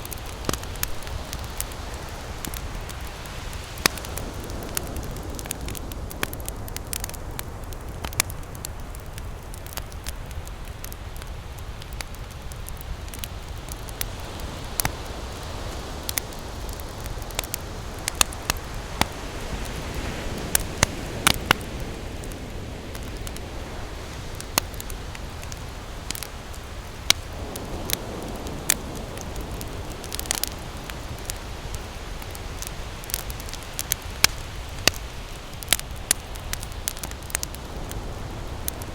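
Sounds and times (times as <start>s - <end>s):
campfire crackling and popping: 0.0s - 38.9s
ocean surf: 14.1s - 38.9s.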